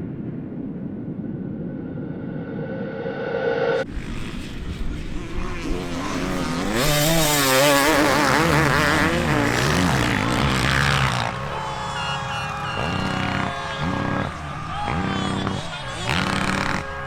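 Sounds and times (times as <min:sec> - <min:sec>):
motocross bike engines revving: 0:03.9 - 0:17.0.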